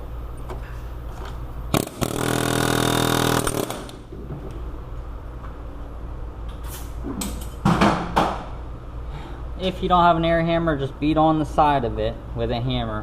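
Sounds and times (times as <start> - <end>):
pneumatic air hammer hammering: 1.7 - 4.1.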